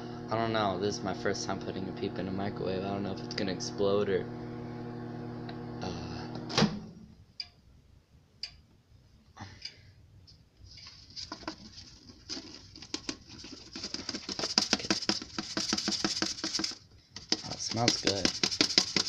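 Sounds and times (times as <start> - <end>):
microwave oven humming: 0.0 - 7.0.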